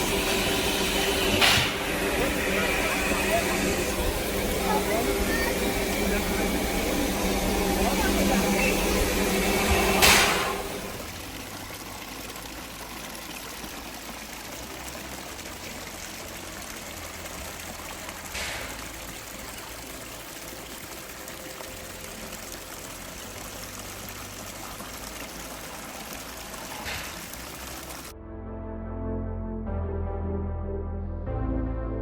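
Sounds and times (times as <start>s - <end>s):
loud burst of noise: 0.0s - 11.1s
running water rushing: 0.0s - 28.1s.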